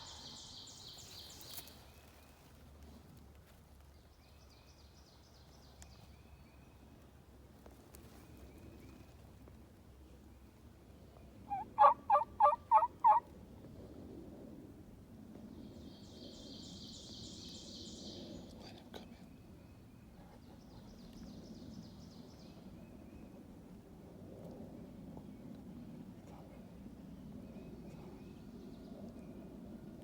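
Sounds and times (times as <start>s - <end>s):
turkey yelps: 11.5s - 13.2s.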